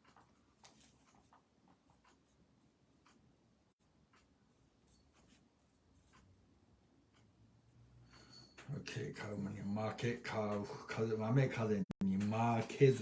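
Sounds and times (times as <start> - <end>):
calligraphy brush scratching paper: 0.0 - 2.4.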